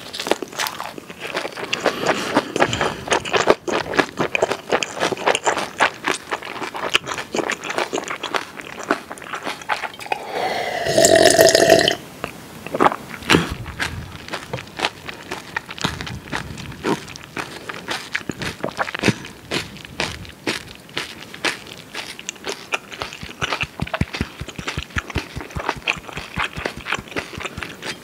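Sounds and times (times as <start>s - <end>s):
wet crunchy chewing: 0.0s - 28.0s
loud belch: 10.0s - 12.0s.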